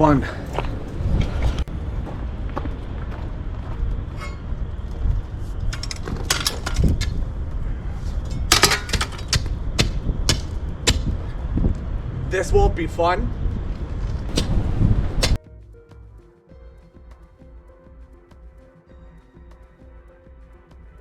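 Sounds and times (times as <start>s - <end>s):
wind buffeting microphone: 0.0s - 15.4s.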